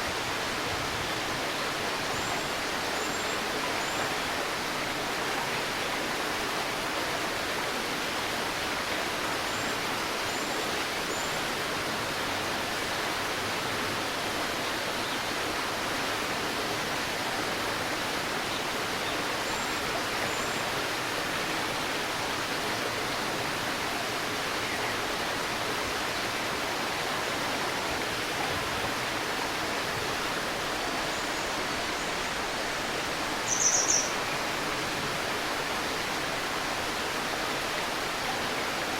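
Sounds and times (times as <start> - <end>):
stream babbling: 0.0 - 38.9
short high bird chirps: 33.5 - 34.1.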